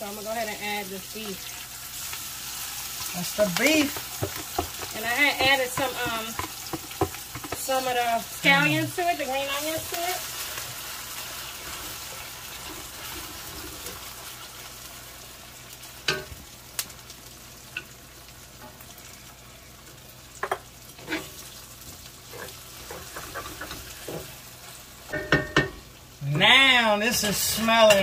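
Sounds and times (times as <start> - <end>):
beef sizzling in hot oil: 0.0 - 28.0.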